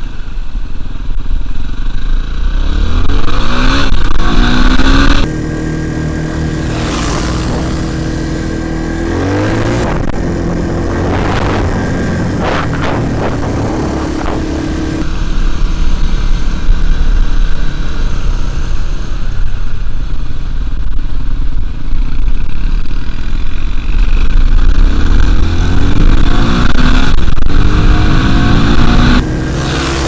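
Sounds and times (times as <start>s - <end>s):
wind rumble on microphone: 0.0s - 30.0s
dirt bike engine revving: 1.9s - 15.0s, 24.6s - 30.0s.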